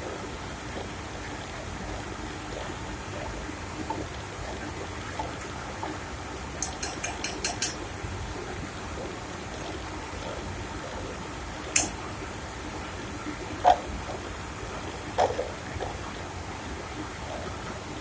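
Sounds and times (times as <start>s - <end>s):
sharp high clicks: 6.6s - 7.8s, 11.8s - 12.0s.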